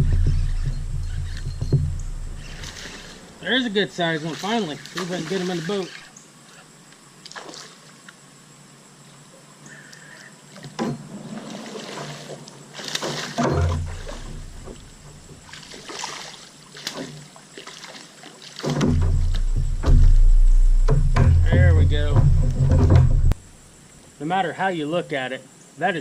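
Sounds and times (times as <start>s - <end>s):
heavy low bumps: 0.0s - 3.9s, 13.4s - 15.5s, 18.7s - 23.7s
water splashing and sloshing: 0.0s - 8.3s, 10.4s - 24.1s.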